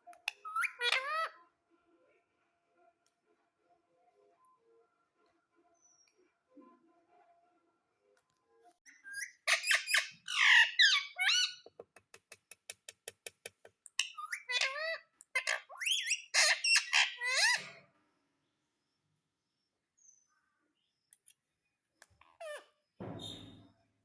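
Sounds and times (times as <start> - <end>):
parrot squawking and whistling: 0.2 - 1.3, 8.9 - 11.6, 14.0 - 17.7.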